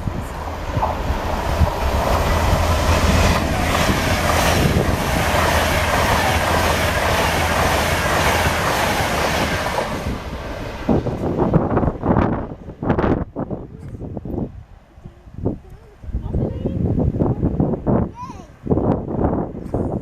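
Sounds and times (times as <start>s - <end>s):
train wheel and rail noise: 0.0s - 15.1s.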